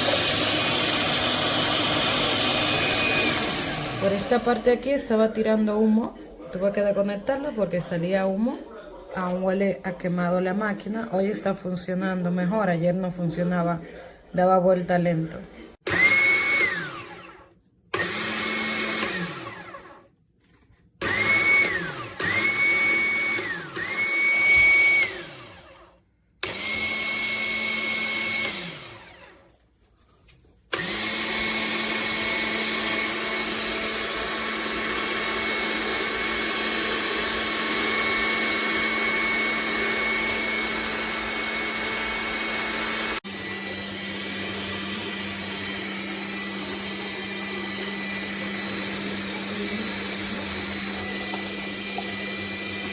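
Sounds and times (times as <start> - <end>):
juicer motor whining: 0.0 - 4.7, 15.8 - 20.1, 21.0 - 29.4, 30.7 - 52.9.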